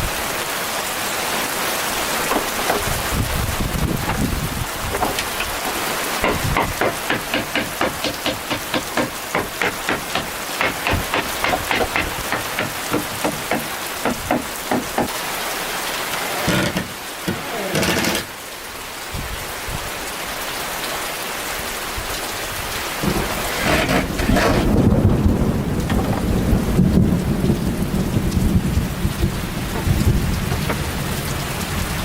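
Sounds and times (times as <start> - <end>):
rain hissing: 0.0 - 32.0
quick sharp knocks: 4.9 - 15.1.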